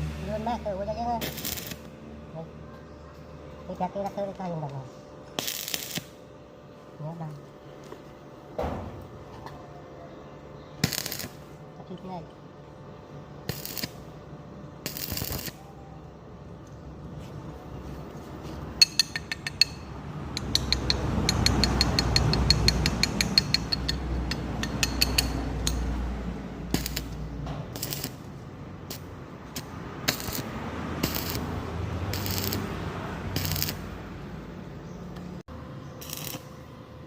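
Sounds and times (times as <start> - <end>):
metal clinking and clicking: 18.8 - 19.8, 20.4 - 25.9
fast ratchet-like ticking: 20.4 - 25.8.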